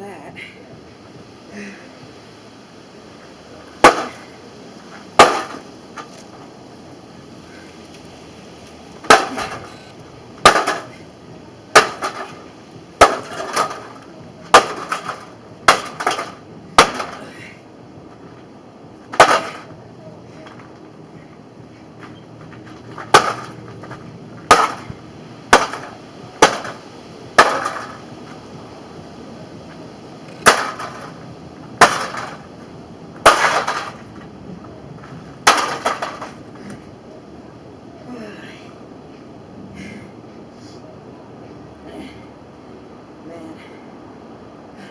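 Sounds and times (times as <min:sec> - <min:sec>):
hammer smashing microwave oven: 0:10.4 - 0:10.9, 0:11.8 - 0:12.4, 0:13.0 - 0:13.9, 0:14.5 - 0:17.2, 0:19.2 - 0:19.6, 0:23.1 - 0:23.5, 0:24.5 - 0:24.8, 0:25.5 - 0:26.8, 0:27.4 - 0:27.9, 0:30.4 - 0:31.1, 0:31.8 - 0:32.4, 0:33.2 - 0:34.0, 0:35.4 - 0:36.3.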